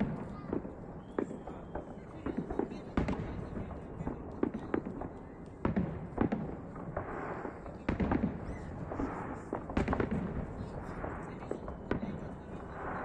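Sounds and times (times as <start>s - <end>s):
firework shells bursting: 4.4s - 11.3s.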